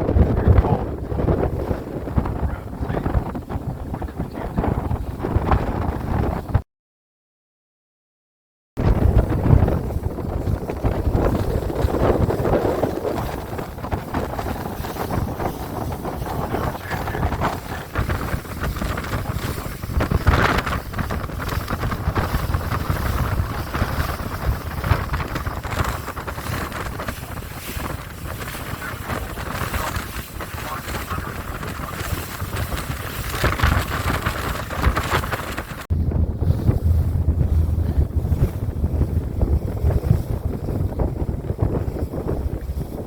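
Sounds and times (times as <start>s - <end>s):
boat engine rumble: 0.0s - 6.6s, 8.8s - 43.0s
wind buffeting microphone: 0.0s - 6.6s, 8.8s - 43.0s.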